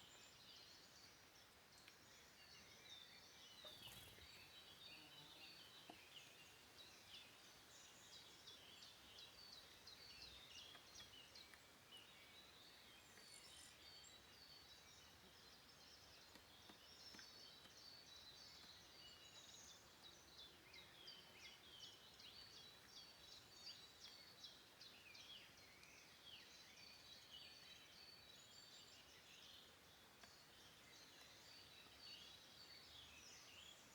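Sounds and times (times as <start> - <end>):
soft steady hiss: 0.0 - 33.9
birds chirping and singing: 2.4 - 6.4.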